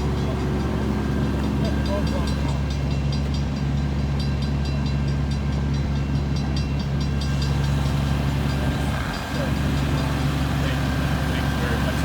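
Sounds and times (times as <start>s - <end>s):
diesel engine idling: 0.0s - 3.4s, 6.9s - 12.0s.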